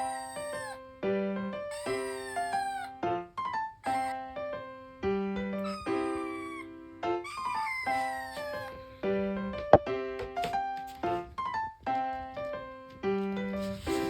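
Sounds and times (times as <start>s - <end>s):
kitten mewing: 0.0s - 0.8s, 1.7s - 3.0s, 3.8s - 4.2s, 5.6s - 9.2s.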